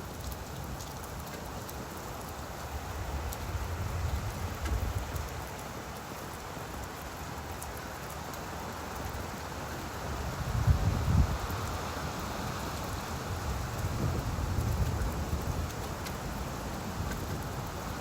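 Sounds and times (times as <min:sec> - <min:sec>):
rain falling on leaves: 0:00.0 - 0:18.0
low wind gusts rumbling: 0:02.8 - 0:05.4, 0:10.0 - 0:18.0.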